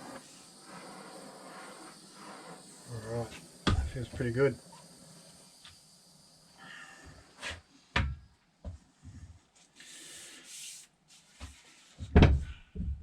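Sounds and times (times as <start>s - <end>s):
short hiss: 9.6s - 11.3s.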